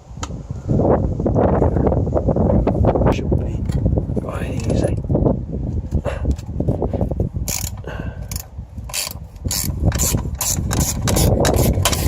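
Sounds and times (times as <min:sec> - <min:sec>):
ratchet wrench clicking: 0:07.5 - 0:12.0.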